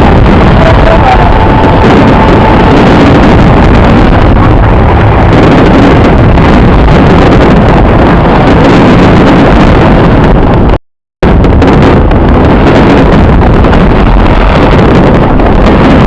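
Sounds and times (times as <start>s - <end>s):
fireworks rumbling: 0.0s - 16.0s.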